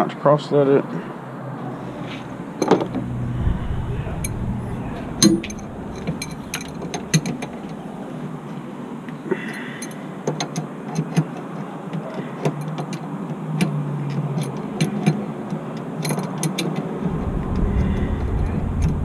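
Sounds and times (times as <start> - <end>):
steady low hum: 1.7 - 9.0, 17.0 - 19.0
low rumble: 1.8 - 8.3, 17.0 - 19.0
hand tools clicking and tapping: 9.3 - 16.9.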